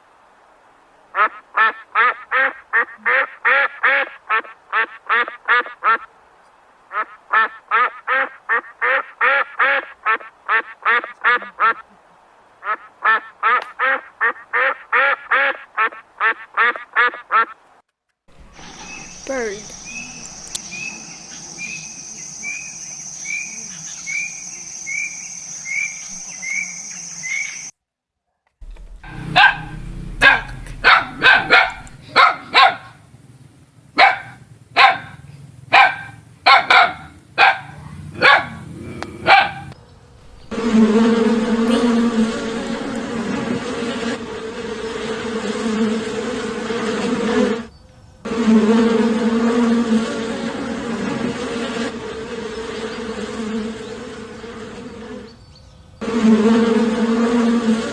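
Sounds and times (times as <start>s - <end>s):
insect buzzing: 18.3s - 23.5s, 28.6s - 32.0s, 40.2s - 43.4s
bird chirping: 18.3s - 27.6s, 28.6s - 32.0s, 40.2s - 43.1s
dog barking: 18.4s - 20.6s, 28.6s - 33.0s, 34.0s - 38.6s, 39.2s - 43.2s.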